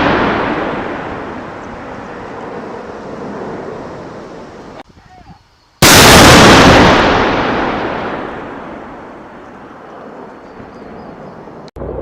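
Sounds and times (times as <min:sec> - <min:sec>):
tank cannon blast: 0:00.0 - 0:02.7, 0:05.8 - 0:09.4.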